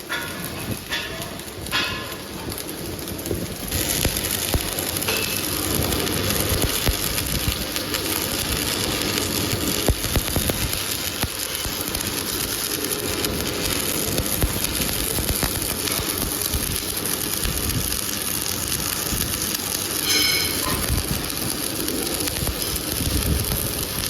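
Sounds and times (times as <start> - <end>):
workshop machinery running: 0.0 - 24.0.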